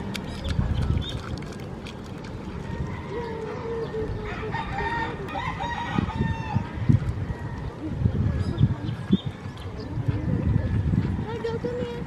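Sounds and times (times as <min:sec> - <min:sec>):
rooster crowing: 0:04.3 - 0:06.6.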